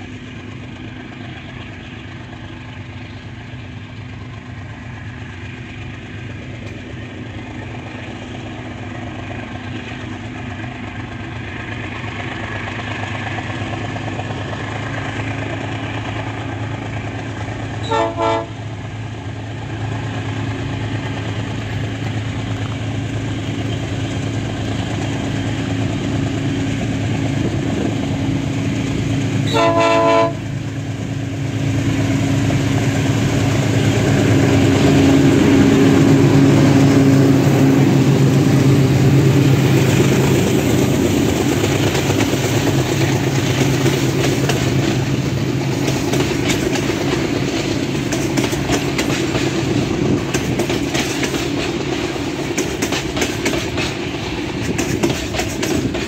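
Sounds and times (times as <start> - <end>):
diesel locomotive engines droning: 0.0 - 56.0
train horn: 17.8 - 18.7, 29.4 - 30.5.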